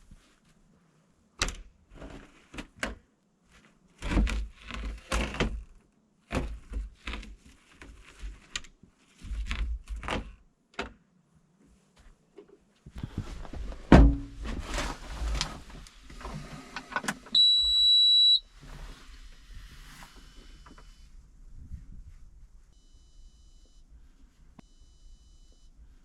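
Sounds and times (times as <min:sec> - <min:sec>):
clunks and knocks: 0:13.8 - 0:14.8
rough scraping: 0:14.4 - 0:16.8.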